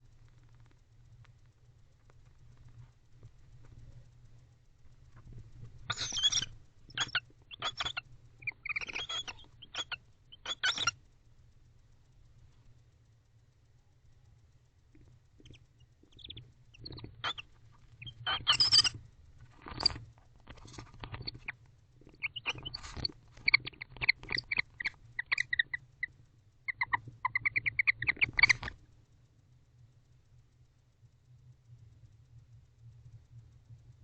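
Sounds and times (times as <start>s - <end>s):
owls high chirping twitter: 5.9s - 11.0s, 15.4s - 19.0s, 19.6s - 20.0s, 21.0s - 26.1s, 26.7s - 28.7s
owls rasping calls: 5.9s - 11.0s, 15.4s - 19.0s, 22.1s - 26.1s, 26.7s - 28.7s.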